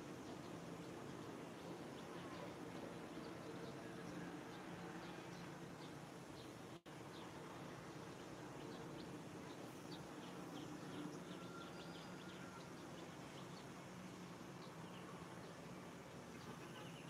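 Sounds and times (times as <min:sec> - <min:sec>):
low background noise: 0:00.0 - 0:17.0.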